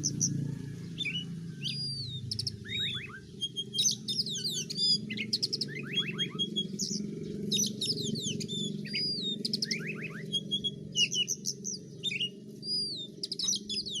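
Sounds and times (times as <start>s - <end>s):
songbird singing: 0.0s - 14.0s
steady low hum: 0.0s - 14.0s.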